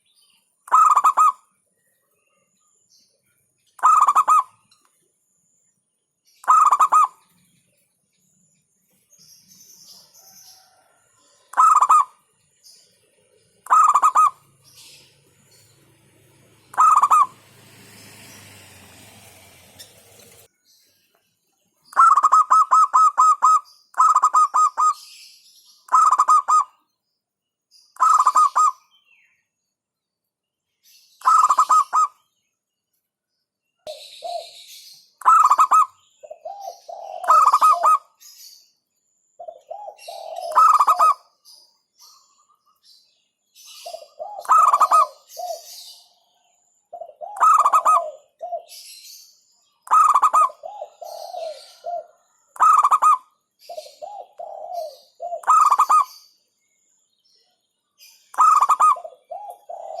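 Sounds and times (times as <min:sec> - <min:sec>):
dove cooing: 0:00.7 - 0:01.4, 0:03.8 - 0:04.6, 0:06.4 - 0:07.3, 0:10.1 - 0:12.2, 0:13.6 - 0:15.7, 0:16.5 - 0:20.5, 0:21.9 - 0:25.0, 0:25.9 - 0:26.8, 0:28.0 - 0:28.8, 0:31.2 - 0:32.1, 0:33.9 - 0:38.2, 0:39.4 - 0:41.3, 0:43.8 - 0:46.0, 0:46.9 - 0:49.2, 0:49.8 - 0:56.3, 0:58.3 - 1:00.0.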